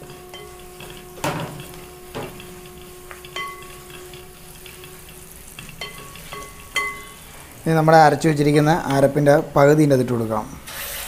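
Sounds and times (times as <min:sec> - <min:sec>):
spoon knocking against pan: 0:00.0 - 0:05.0, 0:05.6 - 0:07.2
food sizzling in oil: 0:00.0 - 0:09.7.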